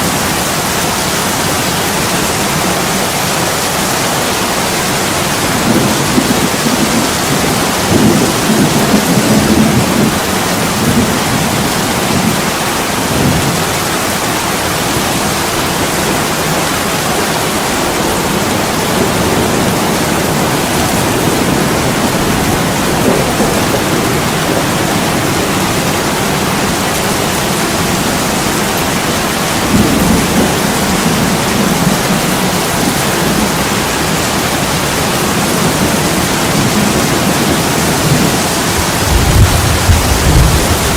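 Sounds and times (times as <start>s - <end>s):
heavy rain on a window: 0.0s - 40.9s
low thunder rumbles: 4.8s - 13.8s, 15.0s - 40.9s.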